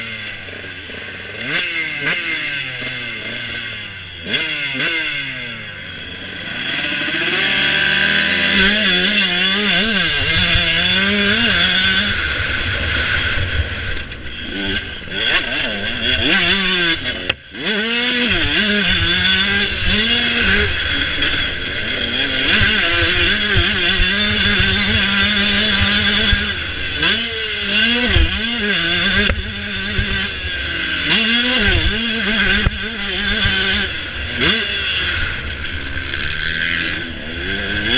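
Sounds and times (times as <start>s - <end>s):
motorcycle engines revving: 0.0s - 37.9s.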